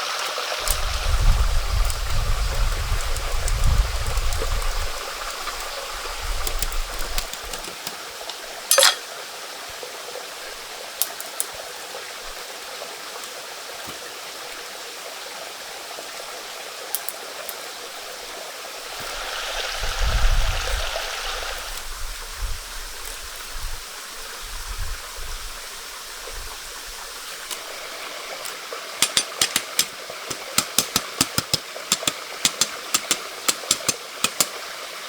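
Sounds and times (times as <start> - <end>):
stream water running: 0.0 - 35.0
sharp click: 29.0 - 34.6.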